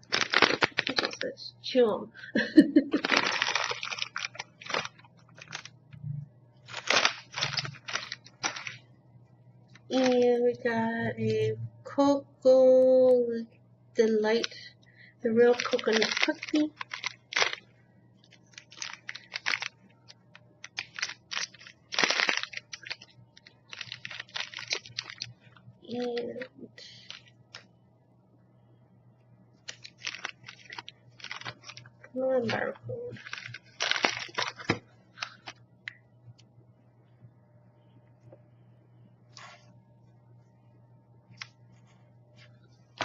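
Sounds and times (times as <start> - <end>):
snack packaging crinkling: 0.0 - 1.3, 2.9 - 5.8, 6.6 - 8.8, 9.8 - 10.2, 15.4 - 27.7, 29.6 - 35.6
almond crunching being chewed: 18.2 - 25.4, 33.2 - 35.6.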